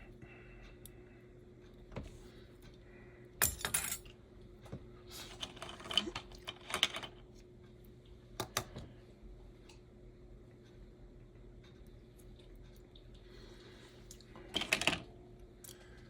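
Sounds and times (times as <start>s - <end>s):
faint steady hum: 0.0s - 16.0s
metal tools clinking and rattling: 3.4s - 4.1s.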